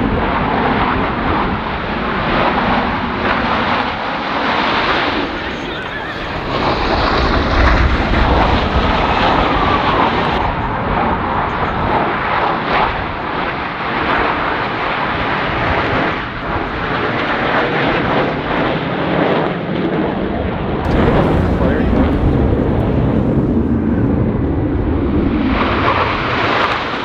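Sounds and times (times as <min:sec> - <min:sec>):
jets flying overhead: 0:05.0 - 0:10.4, 0:20.9 - 0:26.9.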